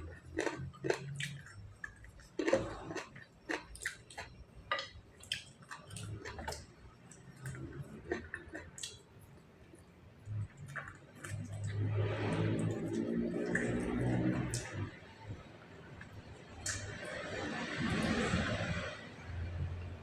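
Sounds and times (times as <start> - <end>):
person chewing food: 0.0 - 14.9.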